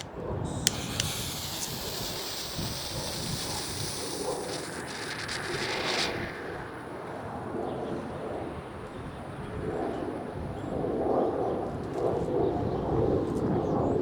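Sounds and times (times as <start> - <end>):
sharp clicks: 0.0 - 7.4
smoke ball hissing: 0.5 - 9.4.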